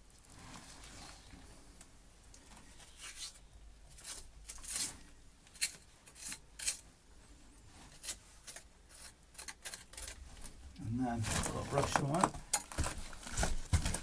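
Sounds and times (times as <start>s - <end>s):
hand tool scraping mortar: 7.9s - 12.2s.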